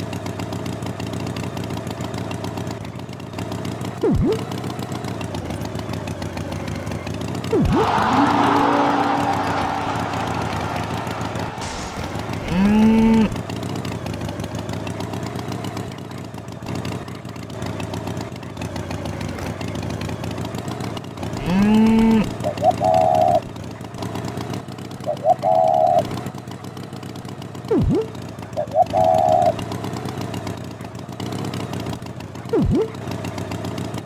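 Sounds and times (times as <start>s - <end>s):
higher wavering honks: 7.5s - 13.4s
loud low pitched calls: 7.5s - 13.4s
small motor running: 21.3s - 23.0s.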